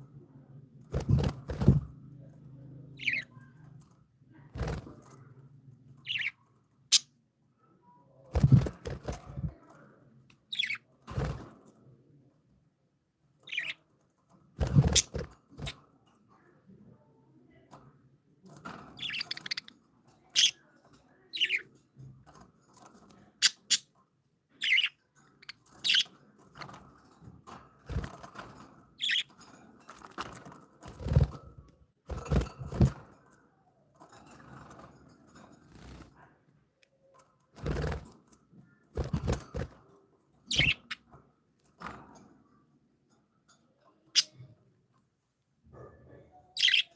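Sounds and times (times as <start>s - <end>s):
birds rustling and knocking: 0.8s - 2.3s, 3.0s - 5.2s, 8.3s - 9.8s, 10.5s - 11.8s, 13.5s - 15.9s, 17.6s - 36.2s, 37.2s - 42.5s
budgerigars chirping: 40.5s - 40.9s, 46.6s - 46.9s.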